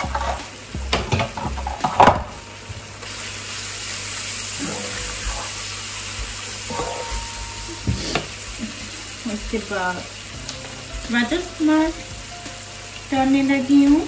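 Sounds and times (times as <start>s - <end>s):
masala sizzling in a wok: 0.0s - 14.0s
spatula scraping a pan: 6.7s - 8.6s.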